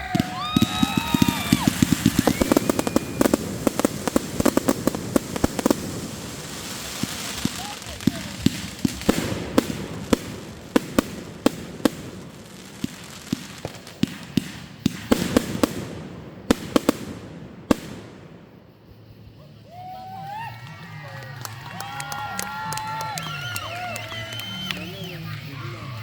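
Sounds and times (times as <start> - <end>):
fireworks bangs: 0.0 - 19.3
fireworks crackling: 0.0 - 26.0.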